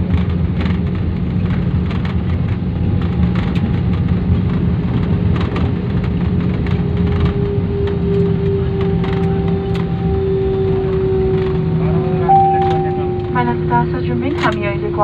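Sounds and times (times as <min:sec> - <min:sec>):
airliner cabin engine rumble: 0:00.0 - 0:15.0
steady hum: 0:11.4 - 0:15.0.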